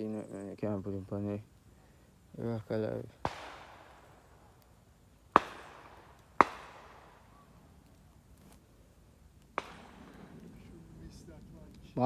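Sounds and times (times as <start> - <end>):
shotgun shots with echo: 3.2 - 4.2, 5.3 - 7.4, 9.6 - 10.4.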